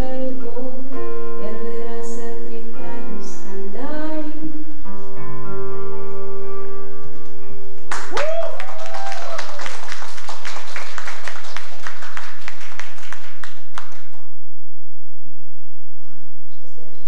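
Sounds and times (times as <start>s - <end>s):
audience clapping: 7.9s - 14.3s.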